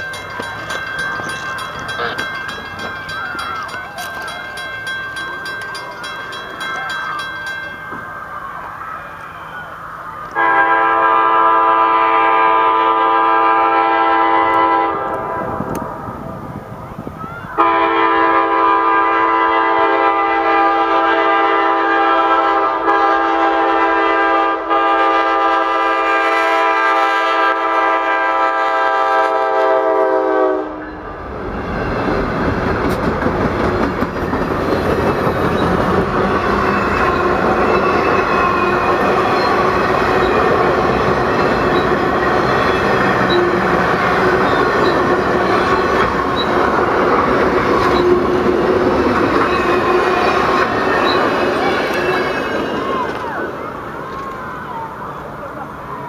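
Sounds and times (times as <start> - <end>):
train wheels rushing on rails: 0.0 - 56.0
locomotive air horn blowing: 10.4 - 15.6, 17.6 - 31.0.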